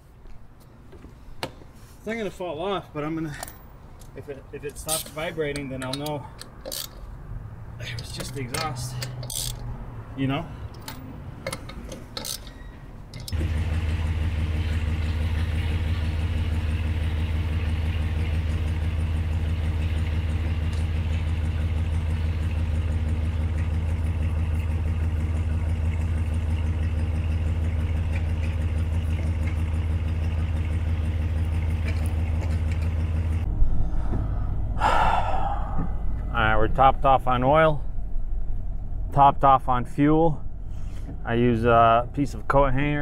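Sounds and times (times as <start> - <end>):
car engine idling at tailpipe: 13.4 - 39.3.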